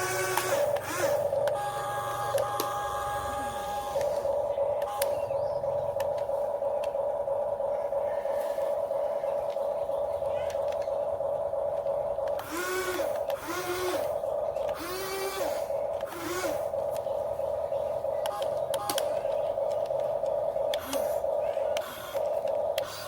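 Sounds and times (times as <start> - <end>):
sharp mechanism clicks: 0.0 - 4.2, 18.2 - 23.0
model excavator motor whining: 0.0 - 8.6, 10.5 - 23.0
rising and falling whines: 0.0 - 23.0.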